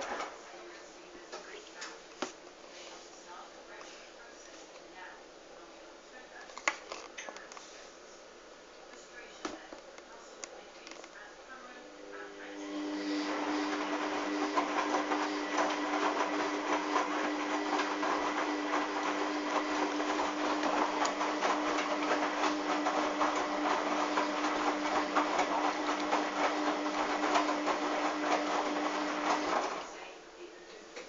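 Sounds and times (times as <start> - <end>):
washing machine motor whine: 11.7 - 30.1
washing machine rattling: 12.8 - 29.8.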